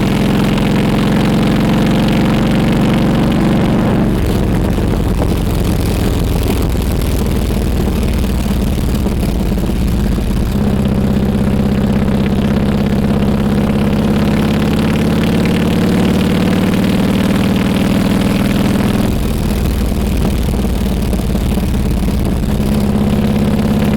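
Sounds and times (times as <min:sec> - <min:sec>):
motorcycle engine running: 0:00.0 - 0:23.9.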